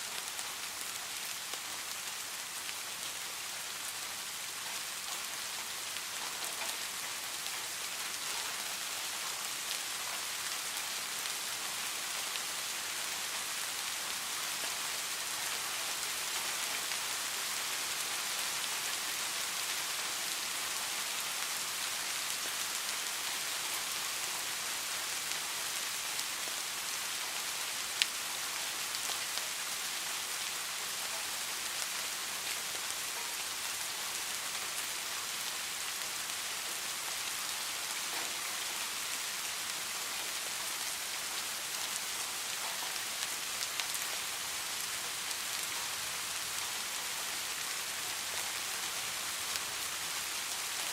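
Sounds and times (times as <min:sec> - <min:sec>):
steady rain falling: 0:00.0 - 0:50.9.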